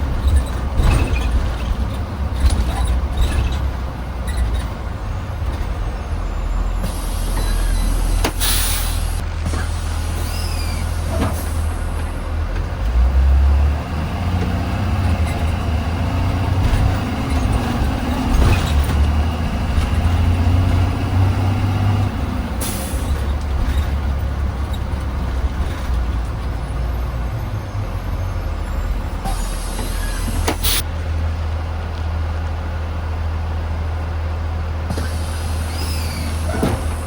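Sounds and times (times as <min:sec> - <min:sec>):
bus engine drone: 0:00.0 - 0:37.0
road noise: 0:00.0 - 0:37.0
air brake hiss: 0:06.8 - 0:11.8, 0:29.2 - 0:30.8, 0:35.0 - 0:36.8.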